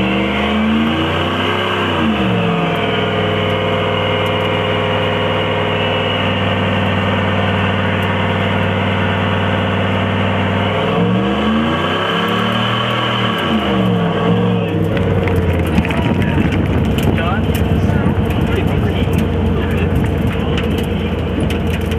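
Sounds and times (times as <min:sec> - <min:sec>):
tire spinning: 0:00.0 - 0:21.9
truck engine revving high: 0:00.0 - 0:21.9.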